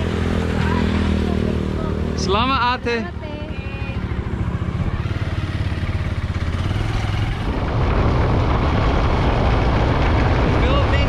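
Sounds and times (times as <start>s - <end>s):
motorcycle engine riding off: 0.0s - 11.0s.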